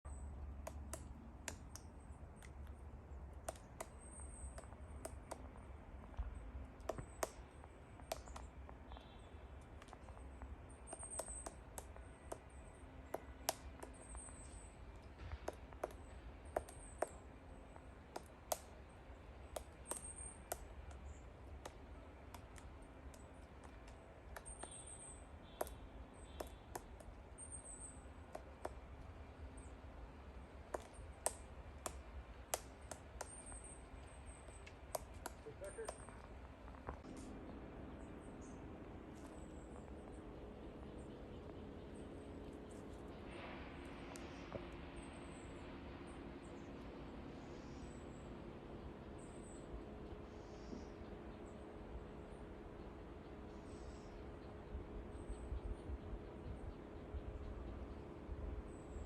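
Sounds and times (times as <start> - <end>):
bird chirping: 0.1 - 59.0
woodpecker tapping on wood: 0.3 - 37.1.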